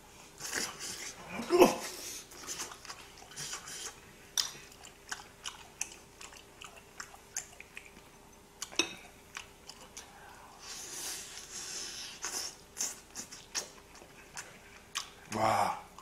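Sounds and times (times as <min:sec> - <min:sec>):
person chewing with wet clicks: 0:02.3 - 0:10.4, 0:12.2 - 0:16.0.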